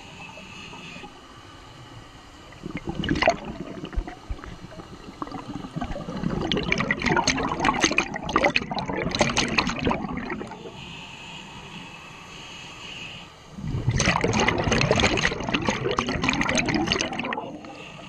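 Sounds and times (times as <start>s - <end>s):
diver's bubbles gurgling underwater: 2.5s - 10.6s, 13.6s - 17.7s.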